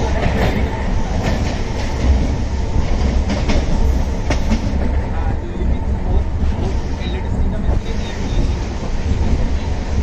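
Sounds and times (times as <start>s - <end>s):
clacks over rail joints: 0.0s - 5.2s
train wheels rumbling: 0.0s - 10.0s.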